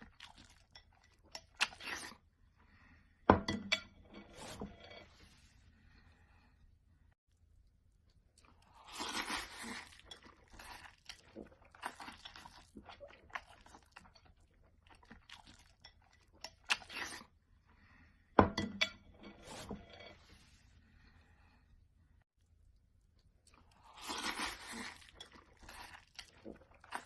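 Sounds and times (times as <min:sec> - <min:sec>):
person crunching and chewing: 0:08.4 - 0:17.3, 0:23.4 - 0:27.0.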